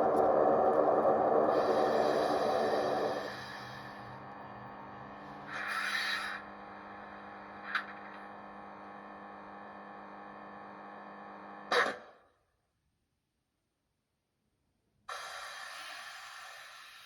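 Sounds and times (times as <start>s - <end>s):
hiss: 1.5s - 4.0s, 5.5s - 6.4s, 15.1s - 17.0s.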